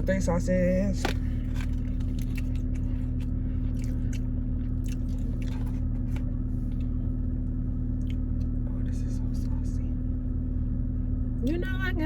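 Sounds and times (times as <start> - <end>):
low hum: 0.0 - 12.0
chewing with wet mouth clicks: 1.6 - 5.9, 7.9 - 8.6.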